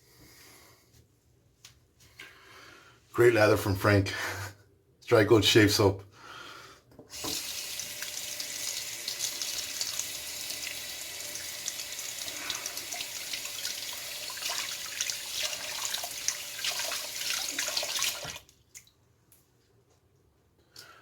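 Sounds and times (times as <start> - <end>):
tap water running into sink: 7.1 - 18.5
small water splashes: 13.6 - 19.0.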